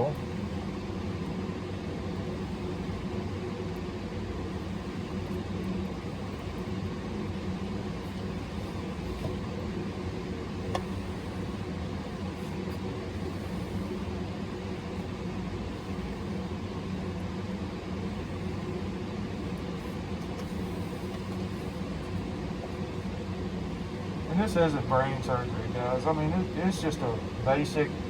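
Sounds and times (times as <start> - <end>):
steady mechanical hum: 0.0 - 28.0.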